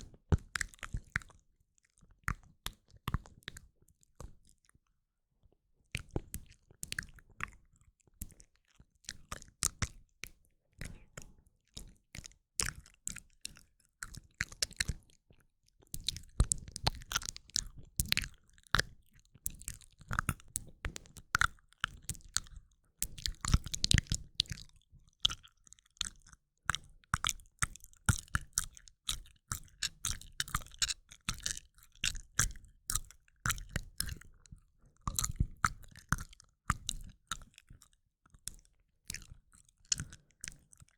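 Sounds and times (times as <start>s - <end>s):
wet mouth clicks: 16.0s - 26.2s, 27.2s - 34.2s, 35.0s - 37.9s, 39.1s - 40.9s.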